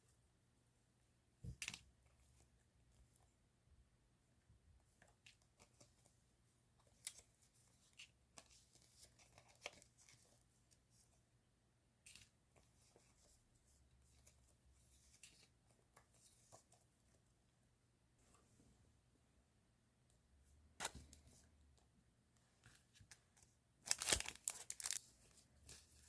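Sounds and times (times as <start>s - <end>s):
paper and plastic rustling: 23.8s - 26.0s.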